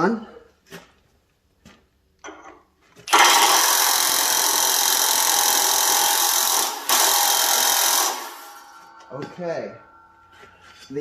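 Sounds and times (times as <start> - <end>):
impact wrench hammering: 3.1 - 10.9.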